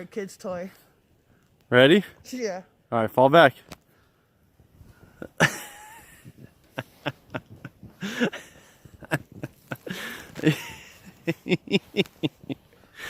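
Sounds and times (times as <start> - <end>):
snow crunching and swishing: 4.5 - 13.0.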